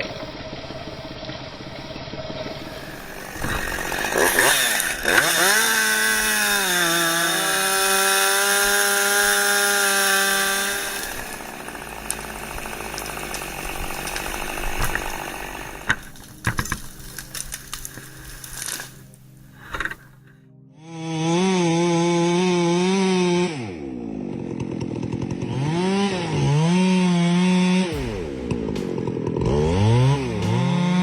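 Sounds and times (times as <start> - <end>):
chainsaw cutting: 0.0 - 20.2, 20.8 - 31.0
sharp cracks and knocks: 2.0 - 20.2.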